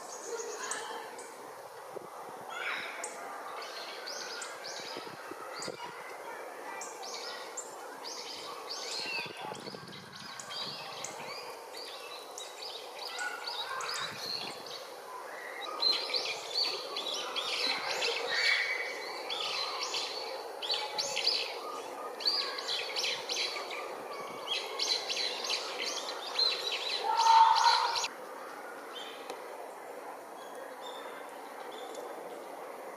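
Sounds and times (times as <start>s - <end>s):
magpies calling harshly: 24.8s - 28.1s.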